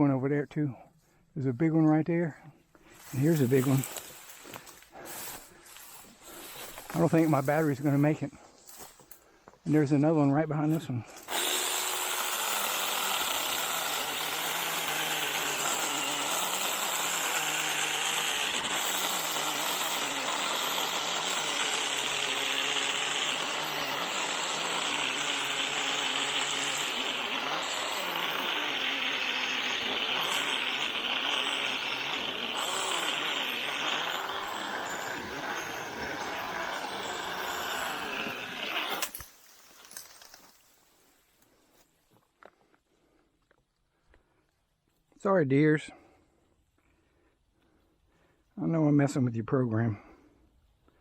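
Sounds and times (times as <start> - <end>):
mini chainsaw cutting wood: 3.1 - 8.0, 10.6 - 40.6.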